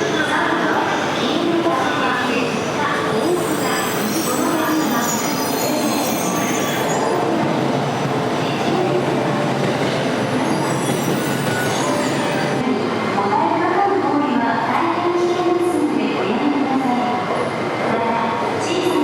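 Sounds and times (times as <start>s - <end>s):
train running on rails: 0.0s - 19.0s
high wheel squeal: 3.1s - 7.2s, 10.4s - 12.6s.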